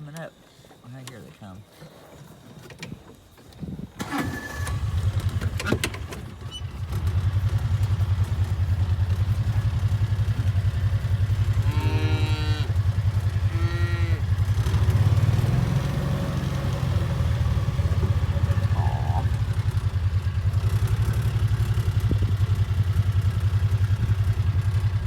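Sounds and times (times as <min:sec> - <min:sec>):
farm vehicle engine rumbling: 0:02.9 - 0:25.0
cattle mooing: 0:10.8 - 0:19.6.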